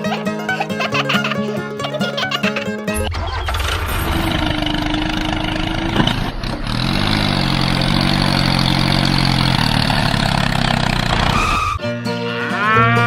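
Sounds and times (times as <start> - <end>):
engine running: 2.9 - 11.8.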